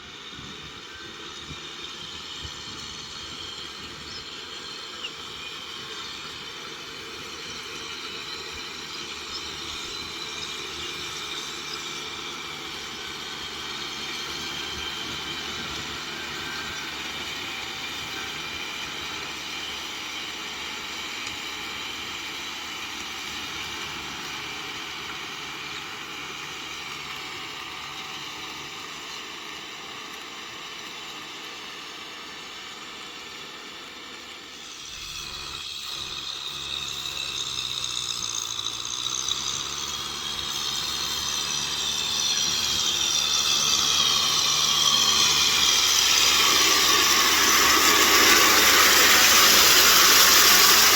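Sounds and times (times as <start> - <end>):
tractor engine drone with whine: 0.0 - 50.9.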